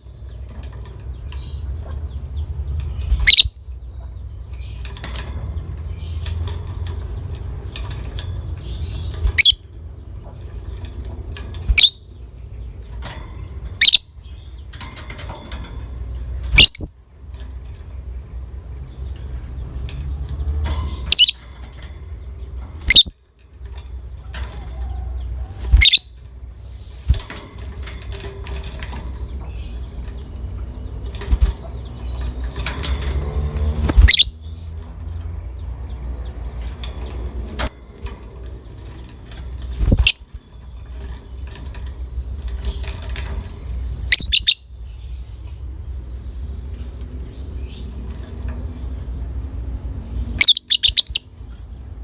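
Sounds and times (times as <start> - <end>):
bird soft chattering: 0.0 - 15.2, 20.7 - 23.2, 23.9 - 34.8
bird high-pitched shrieks: 3.0 - 4.9, 8.8 - 9.7, 11.6 - 12.1, 16.5 - 17.0, 20.7 - 21.9, 22.7 - 23.2, 24.2 - 28.2, 33.8 - 34.7, 44.0 - 44.8, 50.3 - 51.4.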